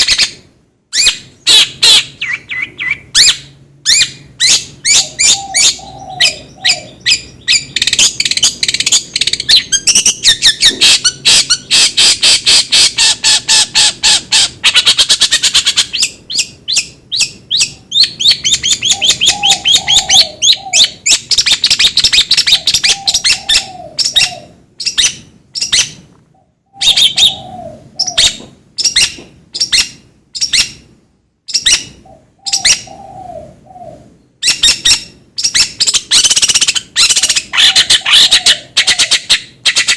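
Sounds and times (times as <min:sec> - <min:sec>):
bird harsh chatter: 0:01.0 - 0:26.0, 0:34.4 - 0:39.9.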